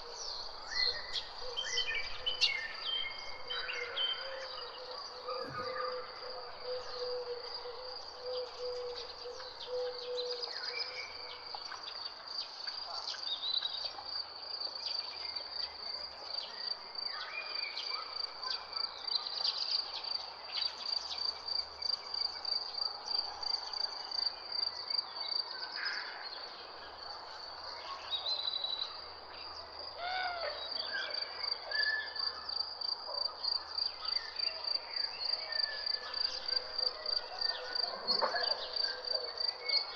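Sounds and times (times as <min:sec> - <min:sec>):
bird calls: 0:00.0 - 0:11.2.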